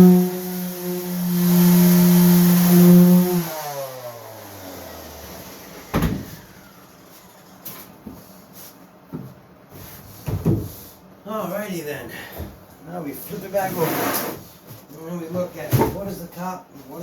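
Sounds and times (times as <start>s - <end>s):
orbit sander running: 0.0s - 7.4s
sander spinning down: 0.0s - 7.5s.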